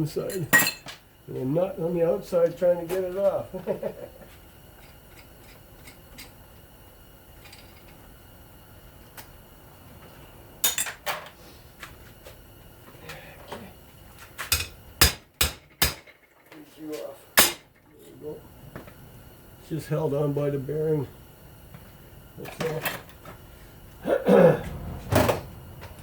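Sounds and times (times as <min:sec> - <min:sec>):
metal fan parts clinking and knocking: 0:00.2 - 0:01.0, 0:04.8 - 0:06.4, 0:07.4 - 0:08.1, 0:10.6 - 0:11.3, 0:14.4 - 0:16.6
sharp metal clanks: 0:17.4 - 0:17.7.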